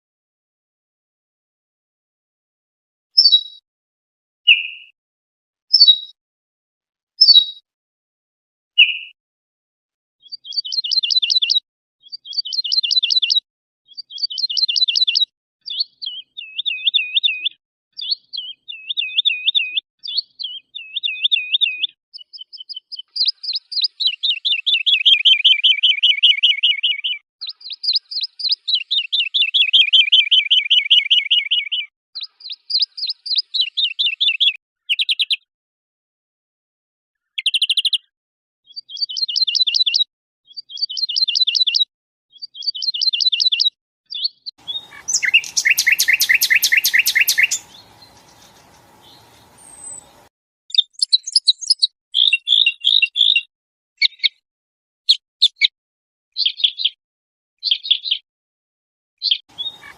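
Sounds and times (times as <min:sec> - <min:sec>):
songbird trilling: 0:44.6 - 0:53.4, 0:59.5 - 0:59.9.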